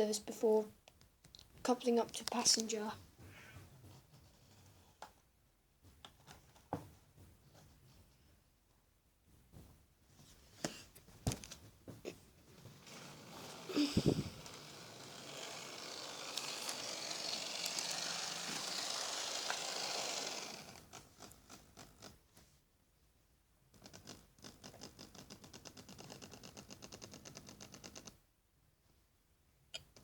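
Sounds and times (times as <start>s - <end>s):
model train rushing noise: 12.7s - 20.9s.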